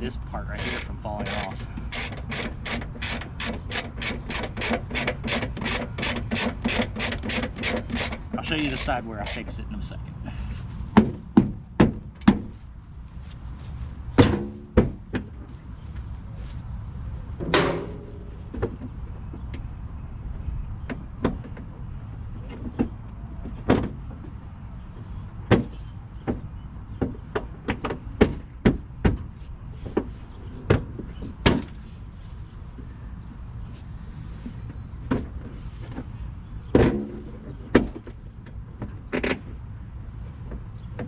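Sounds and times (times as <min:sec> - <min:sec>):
plastic creaks: 0:00.5 - 0:09.5
plastic and metal parts clicking: 0:00.6 - 0:09.5.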